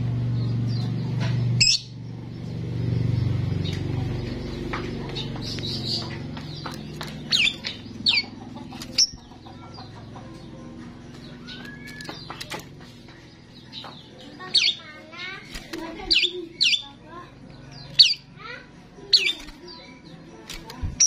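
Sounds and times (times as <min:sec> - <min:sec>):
starling whistles and chirps: 0:01.6 - 0:02.0.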